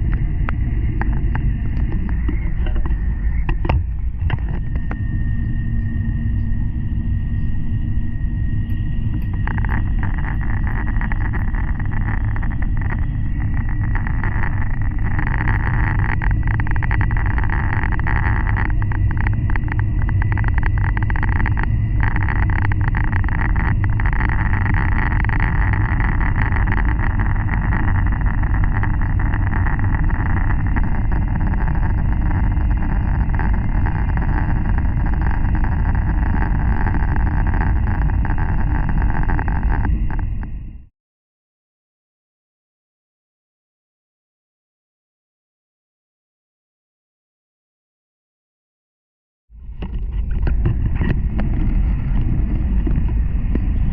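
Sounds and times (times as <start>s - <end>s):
constant hiss: 0.0s - 40.5s
train low rumble: 0.0s - 40.9s, 49.6s - 53.9s.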